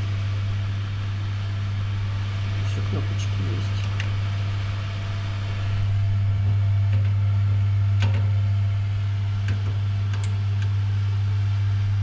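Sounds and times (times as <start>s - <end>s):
fan heater humming: 0.0s - 12.0s.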